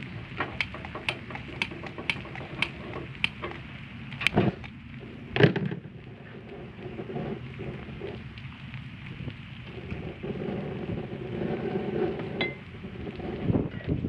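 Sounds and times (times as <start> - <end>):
sharp ticks: 0.0 - 4.3
egg sizzling on a griddle: 0.0 - 14.0.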